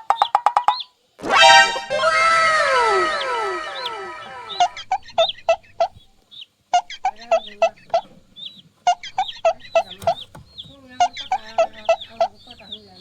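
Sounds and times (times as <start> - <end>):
faint higher chirps: 1.2 - 6.1
chicken clucking: 1.3 - 13.0.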